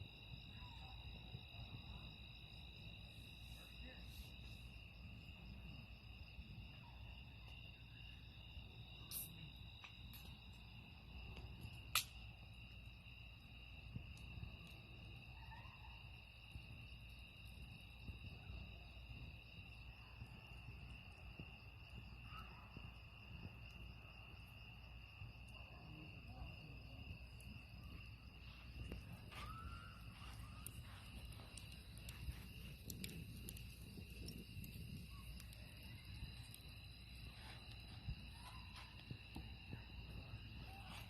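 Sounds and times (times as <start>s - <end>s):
crickets chirring: 0.0s - 41.0s
sharp snaps: 11.9s - 12.2s
faint low rumble: 25.8s - 40.8s.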